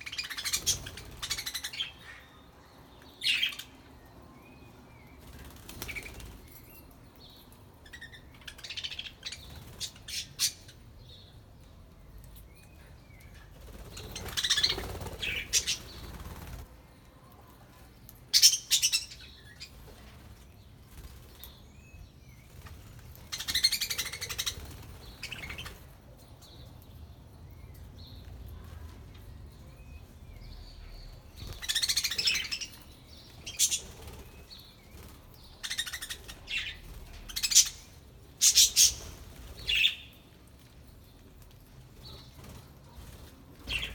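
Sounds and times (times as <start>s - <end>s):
budgerigars chirping and chattering: 35.6s - 40.0s.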